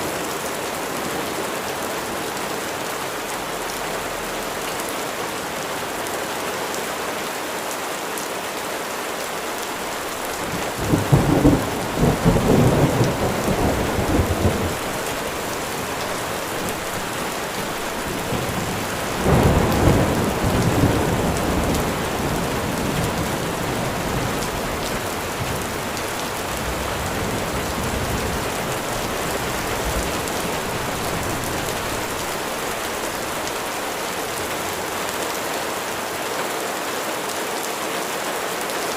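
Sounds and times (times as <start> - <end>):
steady rain falling: 0.0 - 38.9
thunder rolling: 10.4 - 33.4.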